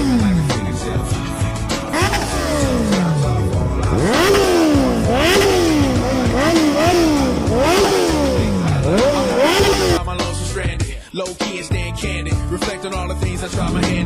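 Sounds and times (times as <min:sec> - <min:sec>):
motorcycle engine revving: 0:00.0 - 0:10.0, 0:13.5 - 0:14.0.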